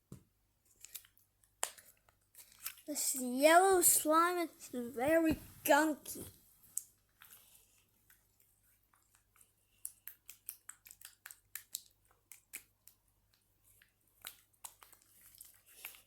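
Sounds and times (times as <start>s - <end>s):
slime squelching in hands: 8.8s - 16.0s.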